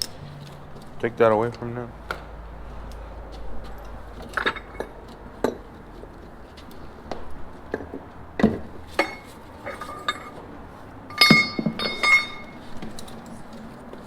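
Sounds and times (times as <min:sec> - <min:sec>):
metal tools clinking: 0:03.7 - 0:05.7, 0:09.0 - 0:10.4, 0:11.1 - 0:13.4.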